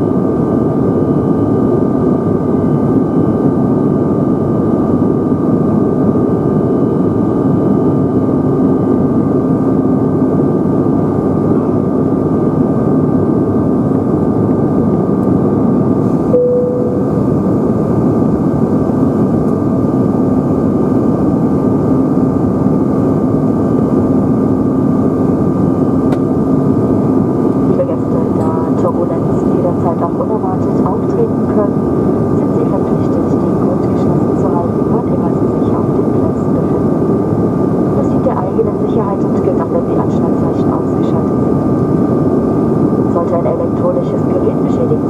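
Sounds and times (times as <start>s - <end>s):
jet engine drone: 0.0s - 45.0s
constant cabin hum: 8.3s - 45.0s.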